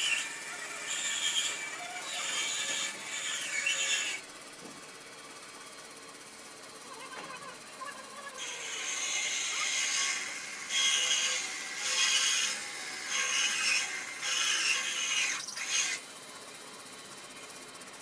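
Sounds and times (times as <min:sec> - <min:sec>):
high-pitched workshop tool: 0:00.0 - 0:04.3, 0:06.9 - 0:16.1.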